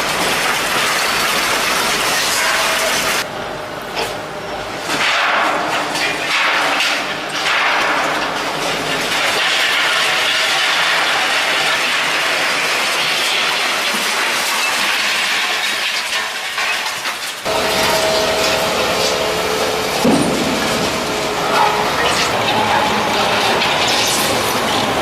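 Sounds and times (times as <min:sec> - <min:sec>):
heavy machinery rumble and hiss: 0:00.0 - 0:25.0
two-note whine: 0:17.5 - 0:25.0.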